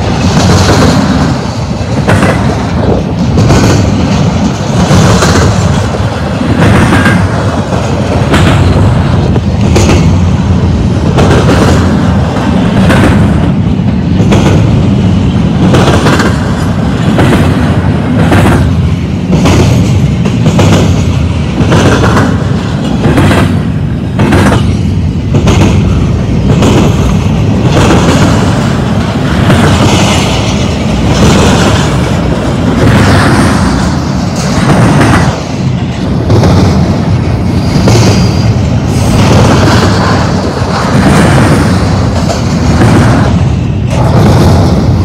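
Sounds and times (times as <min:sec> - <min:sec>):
wheels clacking over rail joint: 0:00.0 - 0:14.7
steel wheels rumbling on rail: 0:00.0 - 0:45.0.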